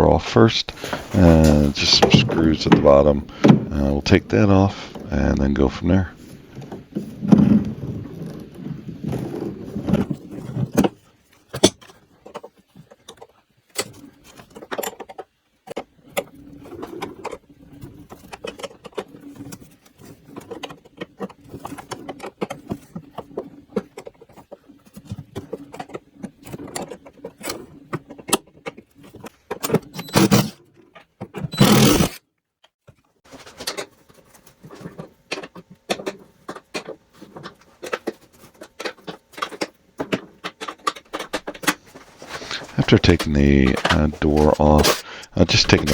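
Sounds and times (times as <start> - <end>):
tools and metal parts clinking: 31.5 - 32.2.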